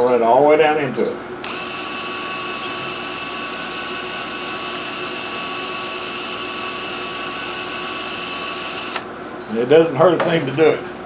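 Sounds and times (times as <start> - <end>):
power drill whining: 1.4 - 9.1.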